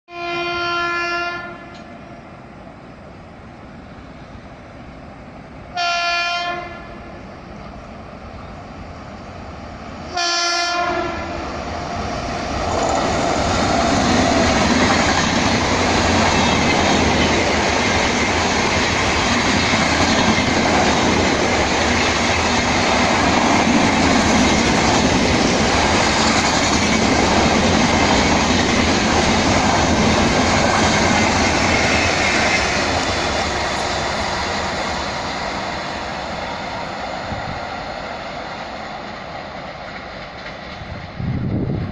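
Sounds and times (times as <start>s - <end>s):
train horn blasts: 0.1s - 1.9s, 5.7s - 7.1s, 10.1s - 11.4s
train rushing past: 0.1s - 41.9s.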